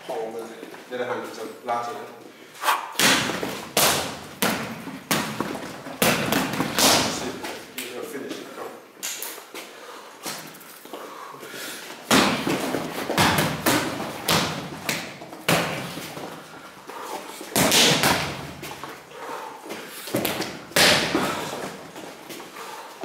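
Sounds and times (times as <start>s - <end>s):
punches thumping training dummy: 3.0s - 7.6s, 12.0s - 16.4s, 17.5s - 18.9s, 20.1s - 21.9s.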